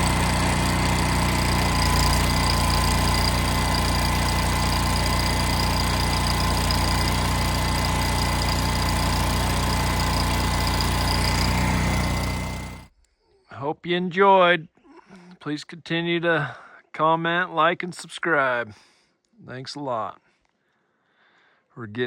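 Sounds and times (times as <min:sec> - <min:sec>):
welder engine running: 0:00.0 - 0:12.9.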